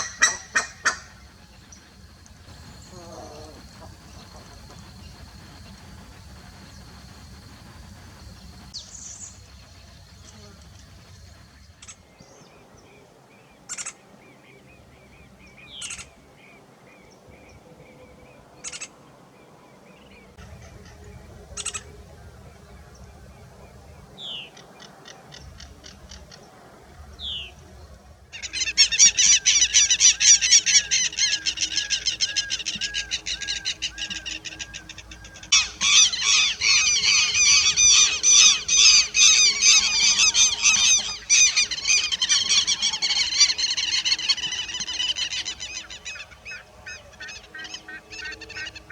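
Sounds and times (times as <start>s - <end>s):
bird chattering song: 0.0s - 12.7s, 28.4s - 48.9s
bird calls and whistles: 28.4s - 48.9s.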